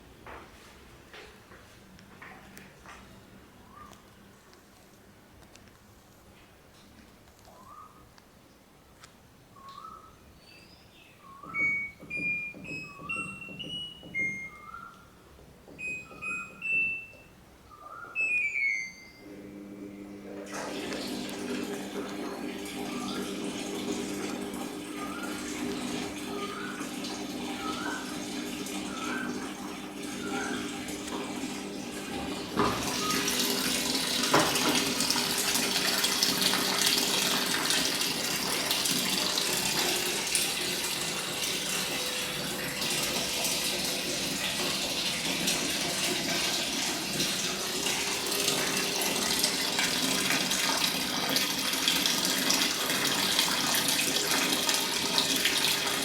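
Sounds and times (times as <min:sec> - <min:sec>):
washing machine humming: 0:11.1 - 0:56.0
water rushing into tub: 0:20.4 - 0:56.0.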